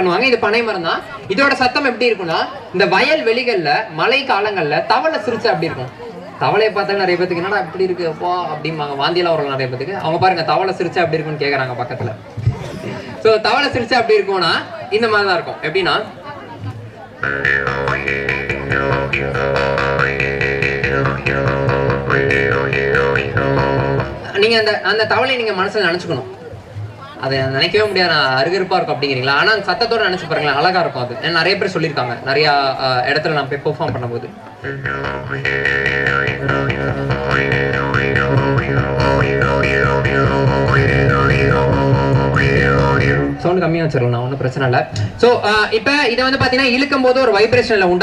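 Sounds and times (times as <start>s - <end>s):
wooden drone pipe: 16.6s - 24.8s, 33.8s - 43.5s
jaw harp twanging: 17.2s - 24.5s, 34.6s - 43.4s.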